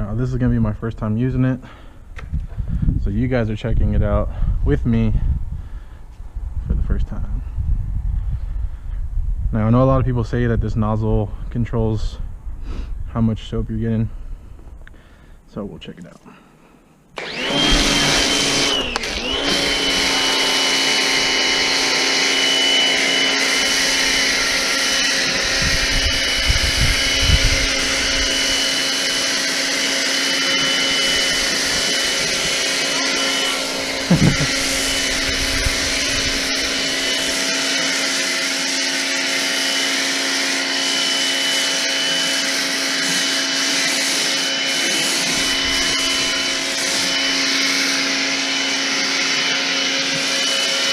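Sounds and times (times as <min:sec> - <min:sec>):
pressure washer motor running: 0:17.2 - 0:50.9
spray hissing: 0:27.7 - 0:39.6.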